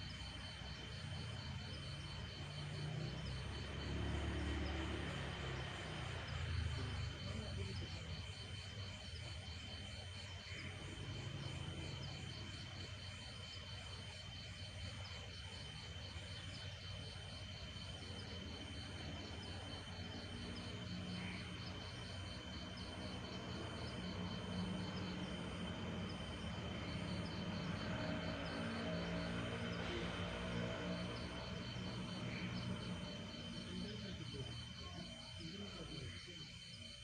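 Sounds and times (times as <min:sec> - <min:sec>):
crickets chirping: 0:00.0 - 0:37.0.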